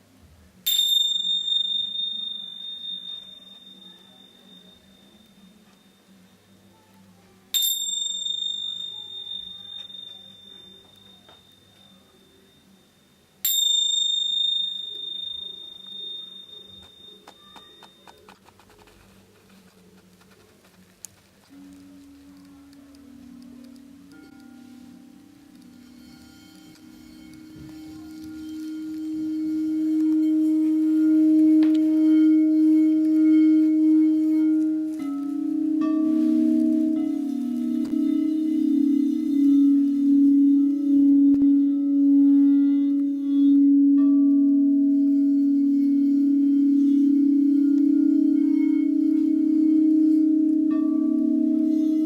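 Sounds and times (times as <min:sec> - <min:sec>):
lower bowl struck: 0:00.6 - 0:18.3, 0:21.5 - 0:52.0
singing bowls ringing: 0:00.6 - 0:18.6, 0:21.5 - 0:52.0
small metal bell ringing: 0:00.7 - 0:06.9, 0:07.5 - 0:18.3.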